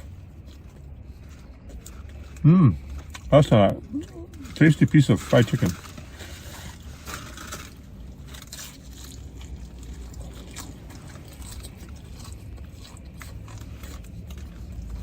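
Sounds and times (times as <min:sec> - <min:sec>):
person chewing crunchy food: 0:00.0 - 0:04.7, 0:05.3 - 0:15.0.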